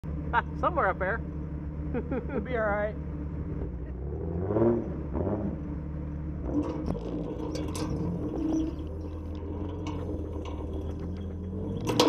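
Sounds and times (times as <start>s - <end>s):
engine running at low speed: 0.0s - 12.0s
clicks and knocks: 6.5s - 12.0s.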